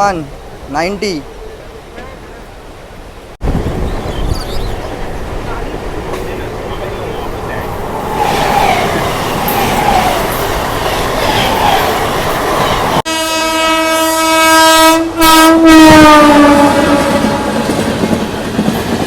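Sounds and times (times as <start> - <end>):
train rail noise: 0.0 - 19.0
loud train horn: 13.1 - 18.0.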